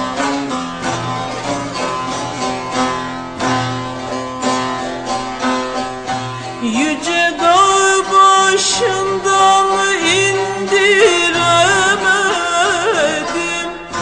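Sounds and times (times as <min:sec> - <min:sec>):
plucked string instruments melody: 0:00.0 - 0:14.0.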